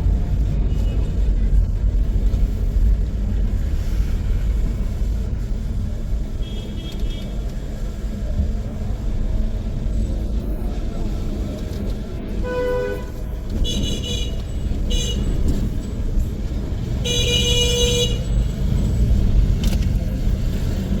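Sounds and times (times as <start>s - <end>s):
street traffic rumbling: 0.0s - 21.0s
car horns honking: 12.4s - 15.8s, 16.9s - 18.6s.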